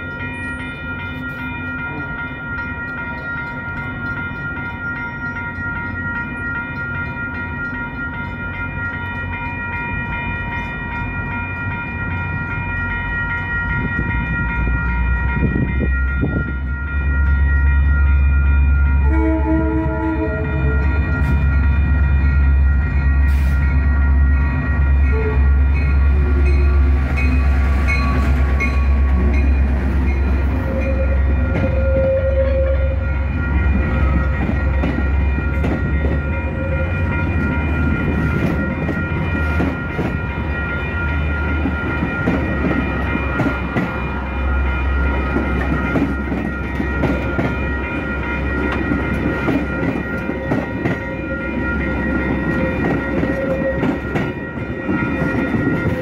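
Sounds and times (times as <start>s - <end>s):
crossing bells ringing: 0.0s - 56.0s
diesel locomotive engine rumble: 0.0s - 56.0s
train horn blast: 19.0s - 20.9s, 25.0s - 25.6s, 30.6s - 33.1s, 52.6s - 54.1s
train wheels clattering over rails: 45.0s - 56.0s.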